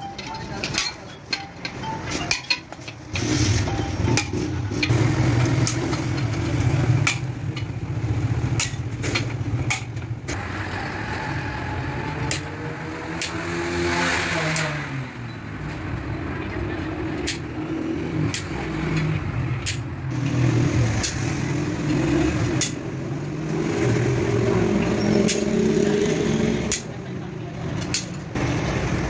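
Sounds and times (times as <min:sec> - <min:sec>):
metallic clinks of tools: 0:00.0 - 0:05.0, 0:23.5 - 0:27.0, 0:27.7 - 0:28.4.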